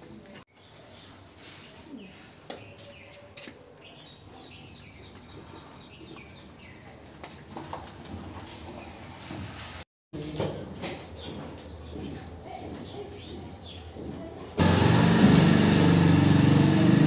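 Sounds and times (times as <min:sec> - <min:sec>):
faint outdoor background noise: 0:00.0 - 0:14.6
small birds chirping: 0:00.5 - 0:07.0, 0:11.1 - 0:14.6.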